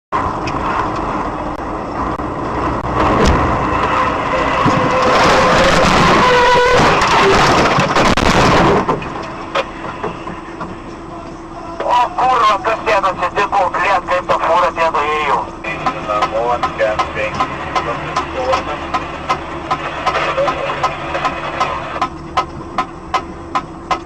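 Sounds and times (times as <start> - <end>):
road and engine noise: 0.1 - 24.0
grinding crash noise: 2.1 - 10.5, 15.7 - 22.2
sharp crack: 4.6 - 9.7.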